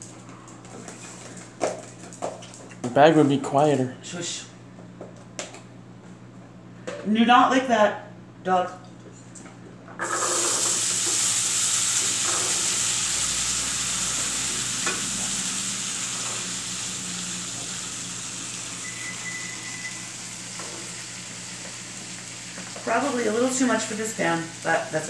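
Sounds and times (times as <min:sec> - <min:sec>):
beans sizzling in frying pan: 0:10.0 - 0:25.0.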